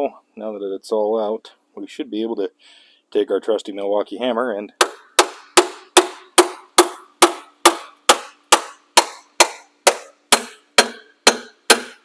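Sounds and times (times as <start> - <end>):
hammer striking metal: 4.8 - 12.0.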